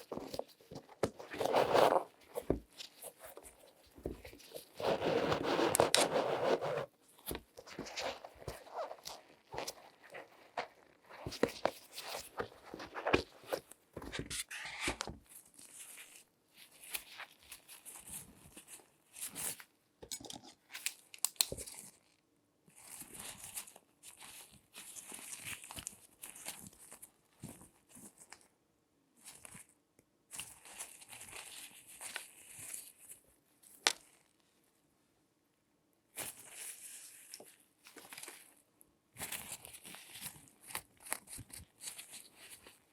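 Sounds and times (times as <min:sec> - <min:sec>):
gloved hands crinkling and scratching: 0:00.0 - 0:28.5, 0:29.2 - 0:34.7, 0:36.1 - 0:42.9.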